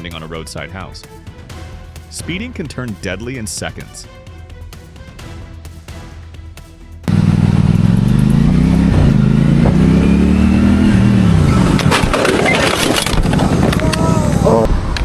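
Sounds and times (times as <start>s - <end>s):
motorcycle crashing: 7.1s - 13.8s
motorcycle engine revving: 7.1s - 14.6s.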